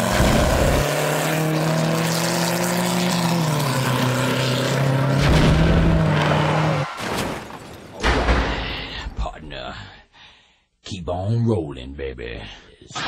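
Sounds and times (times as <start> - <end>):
car engine at steady revs: 0.0 - 6.7.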